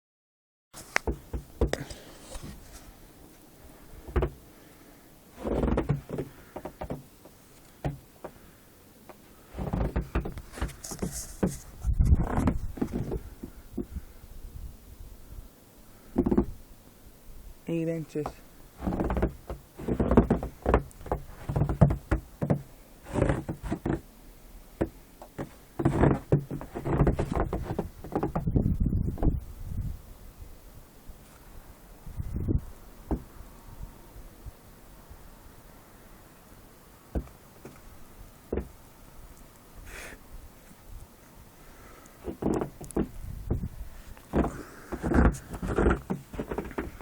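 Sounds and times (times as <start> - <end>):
rustling scraping noise: 0.8 - 14.1, 18.1 - 24.1, 24.8 - 29.4, 31.2 - 33.3, 39.9 - 47.0
irregular knocks and thumps: 1.0 - 1.9, 4.0 - 4.4, 5.5 - 8.4, 9.1 - 14.0, 16.2 - 16.6, 18.2 - 24.0, 24.8 - 29.4, 33.1 - 33.3, 37.1 - 37.8, 38.5 - 38.8, 42.2 - 43.7, 44.3 - 47.0.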